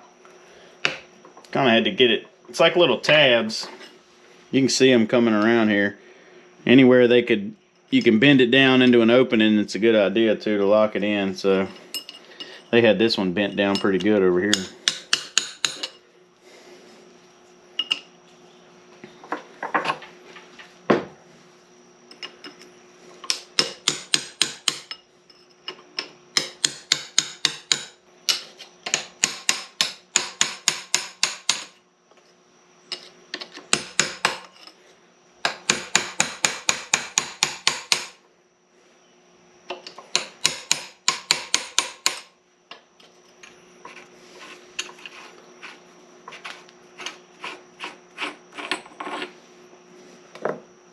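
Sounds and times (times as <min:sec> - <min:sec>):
hammer striking metal punch: 0:14.5 - 0:15.9, 0:23.3 - 0:24.9, 0:26.4 - 0:31.7, 0:40.1 - 0:42.3.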